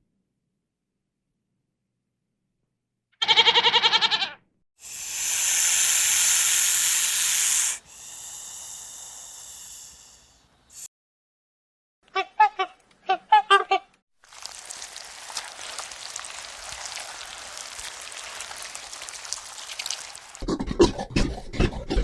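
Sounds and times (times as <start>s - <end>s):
goat bleating: 3.2s - 4.4s
loud hiss: 4.8s - 10.9s.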